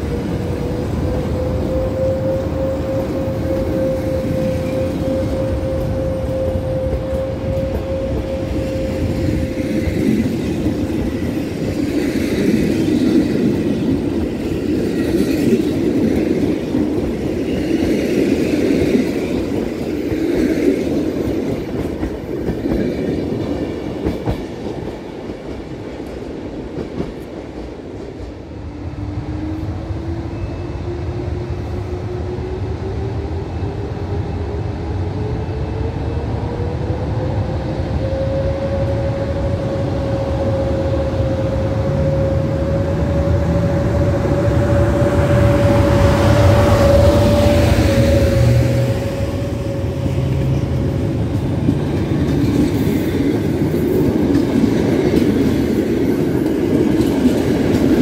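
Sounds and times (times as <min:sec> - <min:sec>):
train wheels clattering on rails: 0:00.0 - 0:28.6, 0:42.1 - 0:58.0
train rumble with rising whine: 0:00.0 - 0:58.0.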